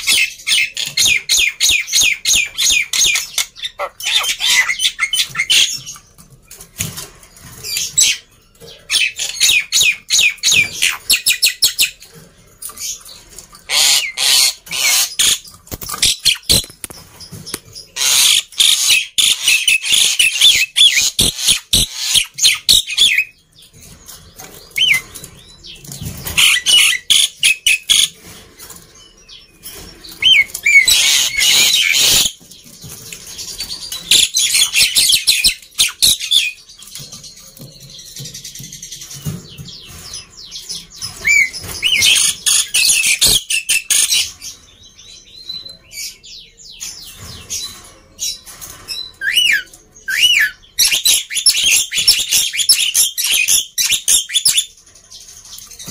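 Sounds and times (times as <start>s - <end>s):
starling harsh chattering calls: 0.0s - 5.8s, 13.7s - 16.8s, 18.0s - 23.3s, 30.2s - 32.4s.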